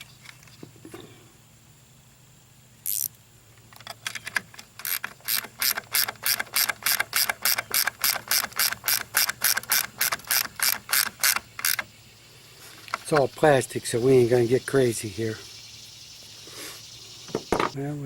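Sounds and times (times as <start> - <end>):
ratchet wrench clicking: 2.8 - 3.2, 3.8 - 11.9.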